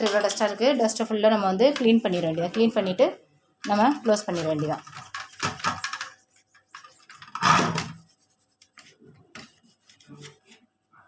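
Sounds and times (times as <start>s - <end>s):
rubbing and scraping by hand: 3.7s - 10.7s.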